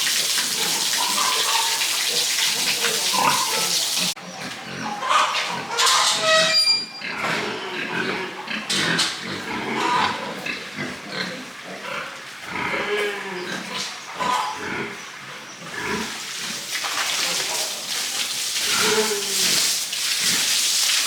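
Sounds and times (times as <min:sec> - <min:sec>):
rush of water-like noise: 0:00.0 - 0:04.2
pigs grunting and snuffling: 0:00.0 - 0:06.3, 0:07.0 - 0:20.5
pig squealing: 0:00.0 - 0:10.6, 0:12.6 - 0:15.0.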